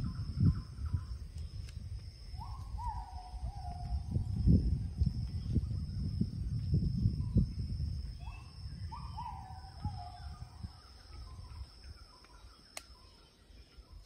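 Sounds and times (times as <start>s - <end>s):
birds whistling: 8.2s - 14.0s.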